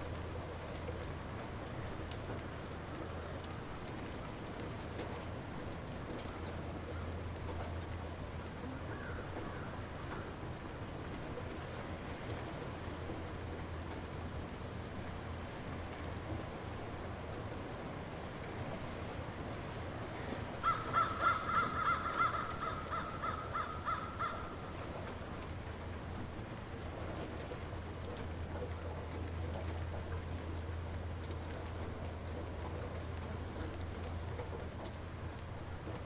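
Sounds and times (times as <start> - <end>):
light rain falling: 0.0 - 36.0
bird calls: 20.6 - 24.8.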